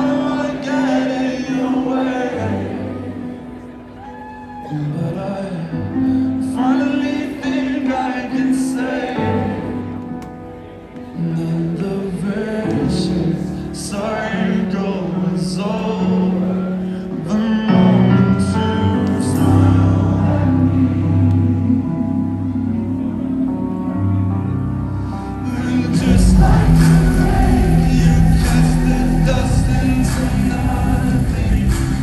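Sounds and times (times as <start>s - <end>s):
lead vocal singing: 0.0s - 23.9s, 25.0s - 32.0s
keyboard chords: 0.0s - 32.0s
bass: 18.2s - 32.0s.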